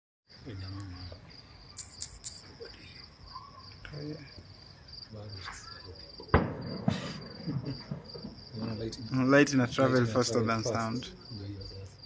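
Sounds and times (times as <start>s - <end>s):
crickets chirping: 0.3s - 12.0s
firework bang: 6.2s - 9.1s.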